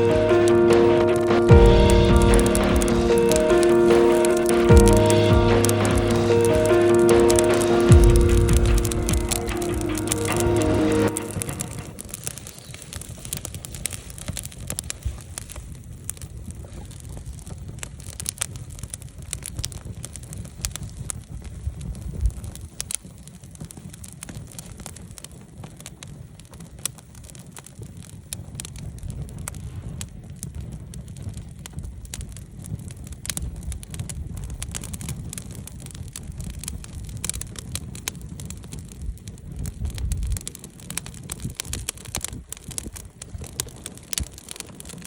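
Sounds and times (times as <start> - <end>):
low rumble: 0.0 - 12.4
campfire crackling and popping: 0.0 - 45.0.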